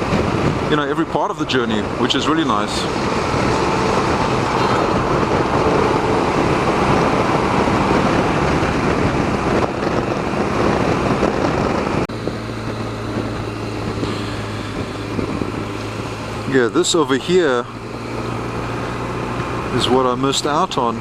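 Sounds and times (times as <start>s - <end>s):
wind rush over microphone: 0.0s - 19.9s
motorcycle engine: 0.0s - 21.0s
low hum: 2.7s - 16.8s.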